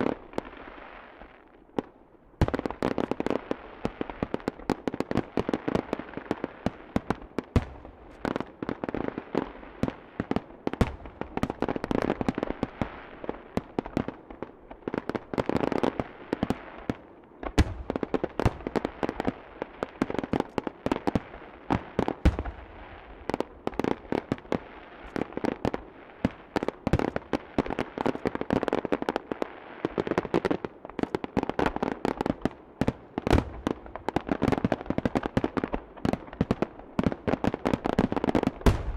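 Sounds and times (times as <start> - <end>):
fireworks crackling: 0.0 - 38.9
firework shells booming: 38.6 - 38.9.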